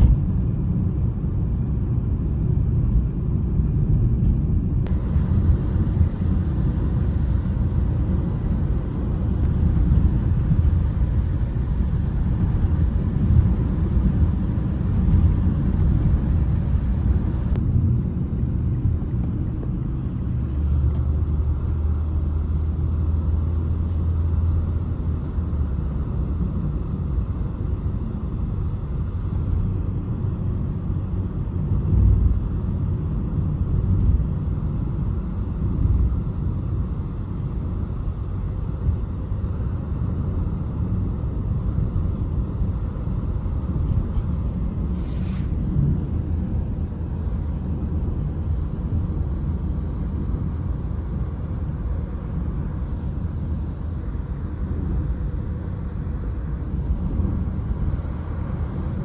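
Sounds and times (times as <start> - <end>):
steady low rumble: 0.0 - 59.0
short hiss: 44.9 - 45.6.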